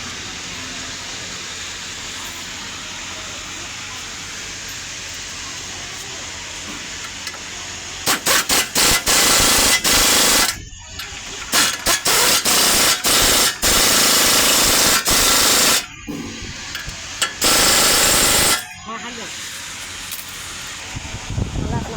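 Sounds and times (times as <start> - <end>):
workshop background noise: 0.0 - 21.9
impact wrench rattling: 8.0 - 18.8.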